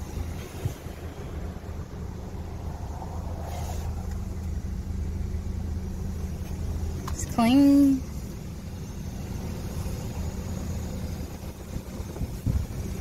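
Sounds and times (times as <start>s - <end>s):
car engine idling: 0.0s - 13.0s
soft swish: 2.4s - 4.5s.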